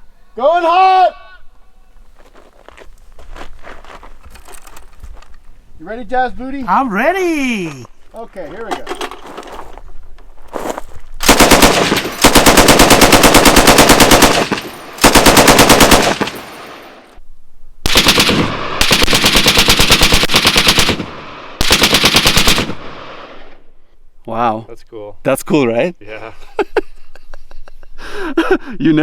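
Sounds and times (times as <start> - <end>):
machine gun bursts: 11.2 - 17.0, 21.6 - 22.7.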